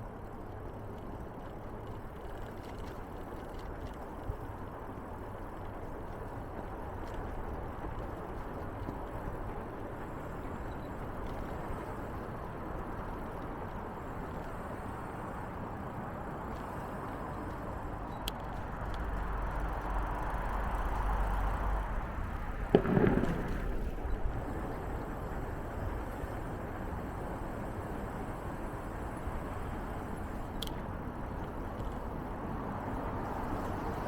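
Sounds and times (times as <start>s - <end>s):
bicycle tyres rolling on path: 0.0s - 34.0s
wind over microphone: 15.6s - 27.2s.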